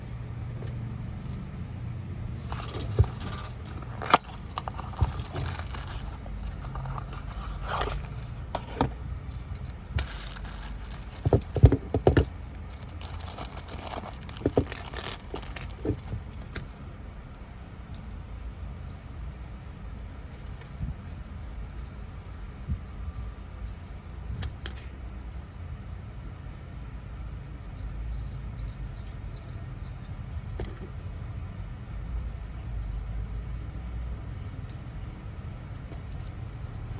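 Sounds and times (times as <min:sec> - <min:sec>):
steady low hum: 0:00.0 - 0:36.9
small hard objects clicking and rattling: 0:02.4 - 0:16.6.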